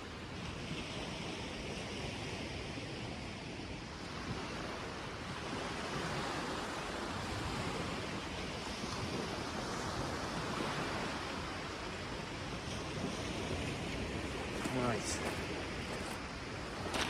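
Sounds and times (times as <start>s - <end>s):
surf washing onto beach: 4.0s - 17.0s
wind on microphone: 4.0s - 17.0s.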